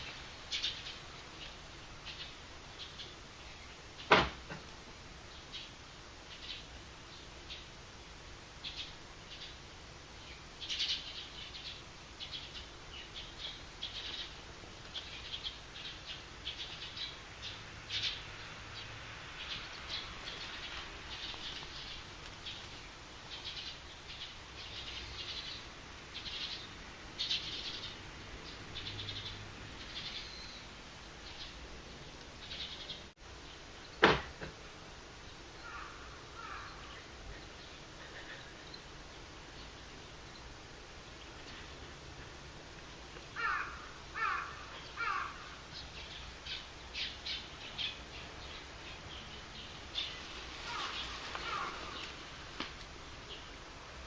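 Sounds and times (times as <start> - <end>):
buzzy chattering bird calls: 18.8 - 31.6, 35.6 - 38.9, 43.4 - 52.5
bird calling harshly: 35.6 - 36.9, 43.4 - 45.6, 50.0 - 52.3.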